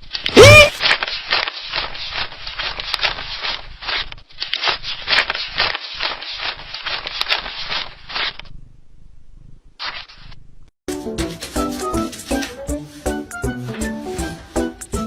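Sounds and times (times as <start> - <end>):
scraping crackling noises: 0.0 - 8.5.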